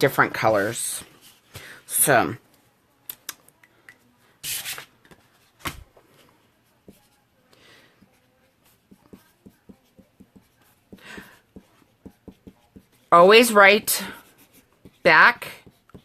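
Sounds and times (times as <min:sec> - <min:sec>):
crafting materials rustling: 0:04.4 - 0:07.2.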